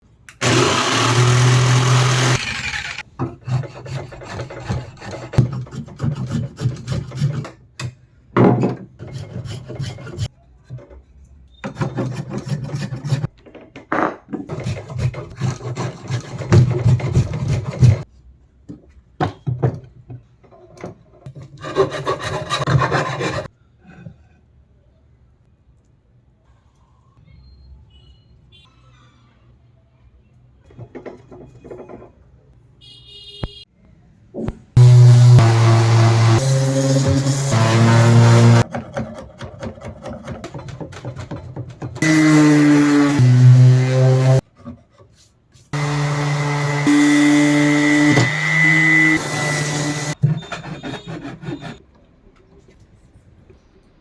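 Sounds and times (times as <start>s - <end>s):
rasping rubbing on wood: 14.5s - 18.0s, 21.6s - 23.5s, 47.0s - 51.8s.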